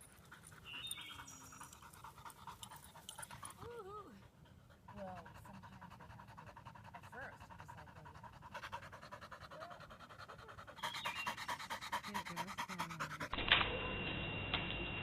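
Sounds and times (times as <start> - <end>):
dog panting: 0.0 - 13.4.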